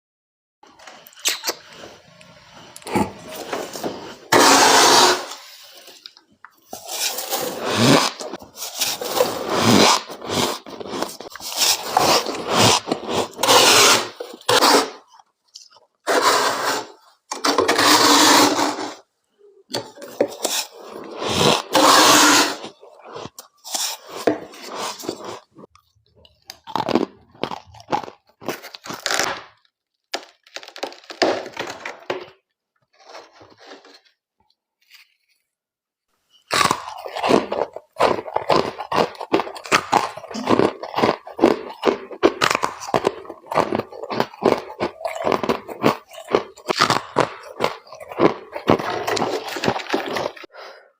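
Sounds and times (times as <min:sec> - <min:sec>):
frost being chewed: 0:05.9 - 0:16.0, 0:20.3 - 0:30.6, 0:36.5 - 0:50.5.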